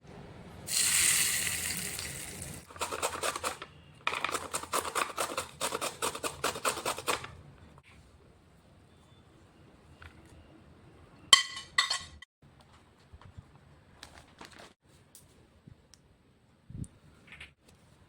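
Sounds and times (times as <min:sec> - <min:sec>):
vegetables being grated by hand: 0:02.6 - 0:07.3.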